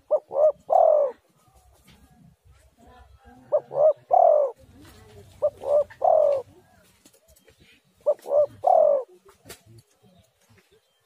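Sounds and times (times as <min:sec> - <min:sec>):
dove cooing: 0:00.0 - 0:02.2, 0:03.0 - 0:09.5.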